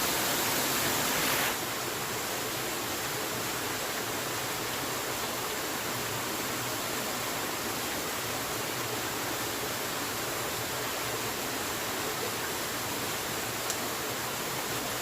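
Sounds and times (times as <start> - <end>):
water rushing: 0.0 - 15.0
faint tick: 13.6 - 13.8.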